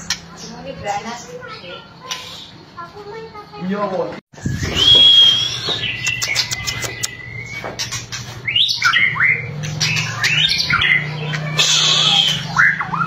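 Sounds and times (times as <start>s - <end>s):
bird singing with clicks and whistles: 4.4s - 13.0s.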